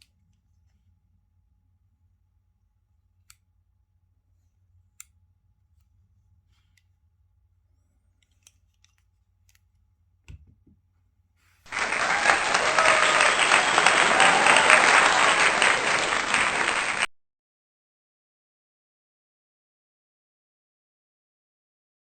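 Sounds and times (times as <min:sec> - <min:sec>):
clicks of small objects handled: 0:08.1 - 0:10.5.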